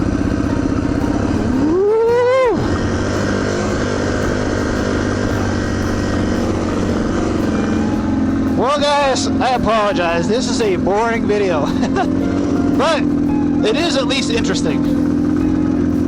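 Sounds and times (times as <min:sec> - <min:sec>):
motorcycle engine revving unevenly: 0:00.0 - 0:16.0.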